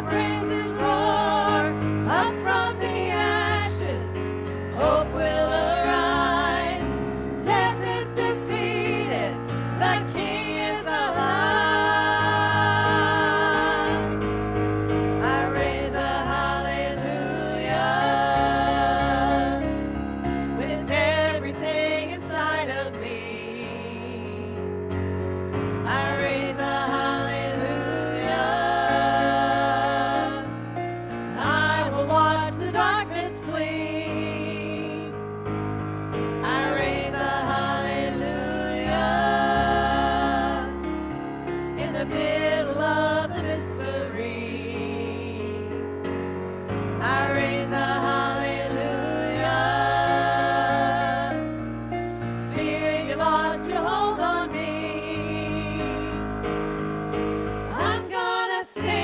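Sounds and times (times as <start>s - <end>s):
gospel worship singing: 0.0s - 59.0s.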